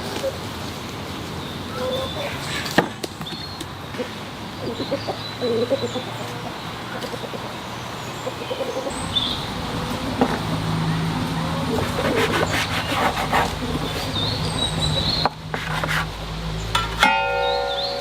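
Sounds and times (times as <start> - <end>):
chickens clucking: 3.6 - 15.4.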